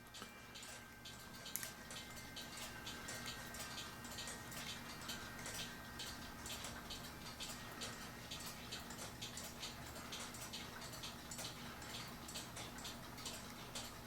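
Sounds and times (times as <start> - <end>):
low room hum: 0.0 - 14.0
clock ticking: 0.1 - 14.0.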